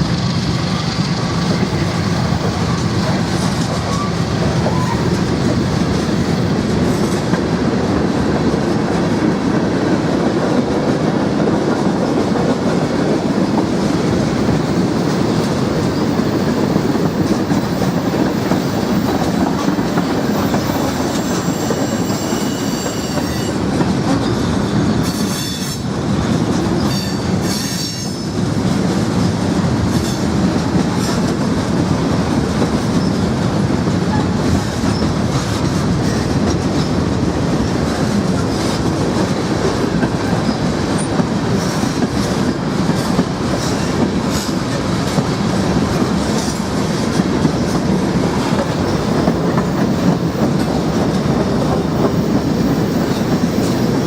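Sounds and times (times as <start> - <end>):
train wheel squeal: 0.8 - 7.2, 14.7 - 25.9, 26.6 - 28.4, 29.9 - 30.3, 32.9 - 33.2, 34.1 - 37.0, 40.2 - 44.6, 47.5 - 54.0.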